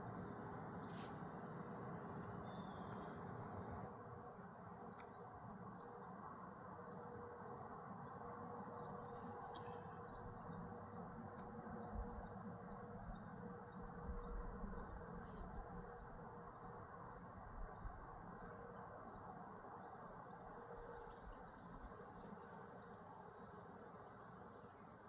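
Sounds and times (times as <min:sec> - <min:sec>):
low steady hiss: 0:00.0 - 0:25.0
insects trilling: 0:00.5 - 0:01.1.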